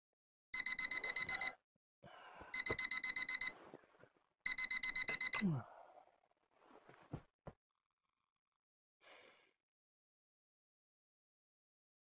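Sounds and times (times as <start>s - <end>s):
alarm clock rapid beeps: 0.6s - 1.6s, 2.5s - 3.6s, 4.5s - 5.6s.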